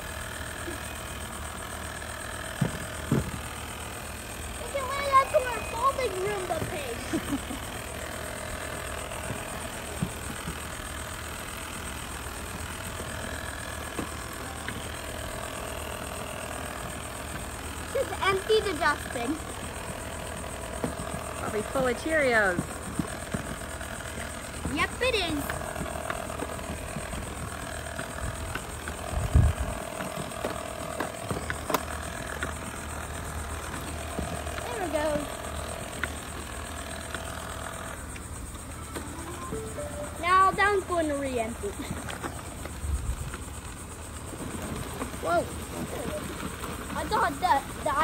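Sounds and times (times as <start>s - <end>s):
robot vacuum motor whirring: 0.0s - 44.4s.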